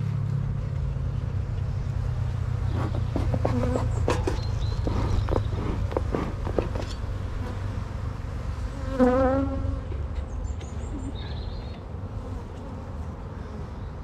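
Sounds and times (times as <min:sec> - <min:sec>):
bees buzzing: 0:02.6 - 0:10.0, 0:10.6 - 0:14.0.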